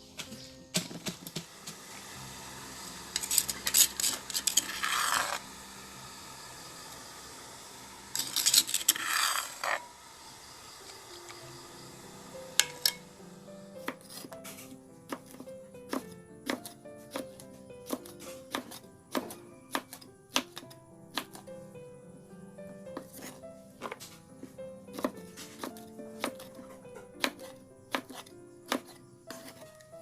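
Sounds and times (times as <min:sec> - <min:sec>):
utensils clinking against dishes: 0:03.1 - 0:05.4.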